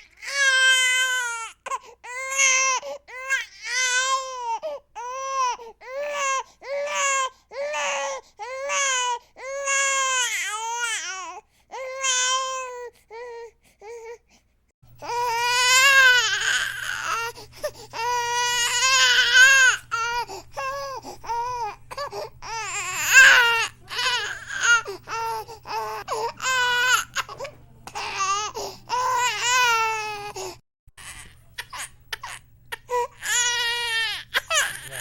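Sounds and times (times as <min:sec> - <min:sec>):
infant crying: 0:00.0 - 0:14.2, 0:15.0 - 0:35.0
low steady hum: 0:14.8 - 0:35.0.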